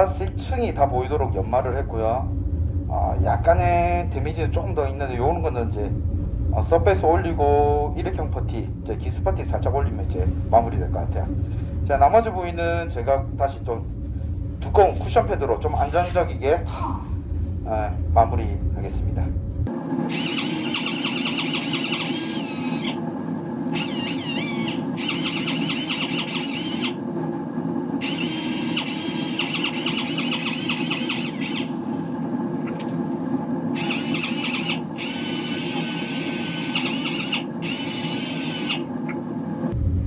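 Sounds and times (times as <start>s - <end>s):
power sander motor hum: 0.0s - 23.1s, 23.7s - 27.0s, 28.0s - 32.0s, 33.8s - 39.0s
high squeal of sanding: 20.1s - 23.0s, 23.8s - 27.0s, 28.0s - 31.8s, 33.8s - 38.8s.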